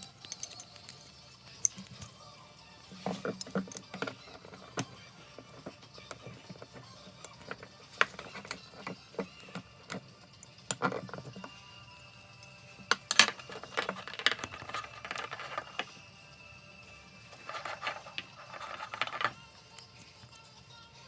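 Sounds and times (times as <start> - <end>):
metallic clicks and knocks: 0.0 - 1.0, 2.9 - 11.6, 12.9 - 15.9.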